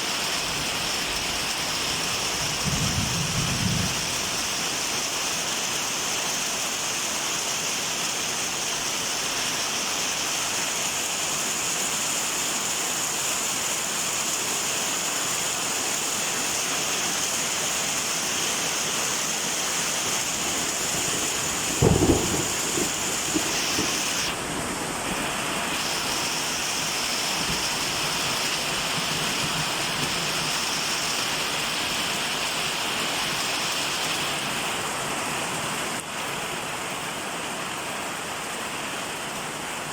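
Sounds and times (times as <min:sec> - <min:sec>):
heavy rain falling: 0:00.0 - 0:39.9
thunder clap rumbling: 0:02.5 - 0:04.4, 0:20.5 - 0:25.4.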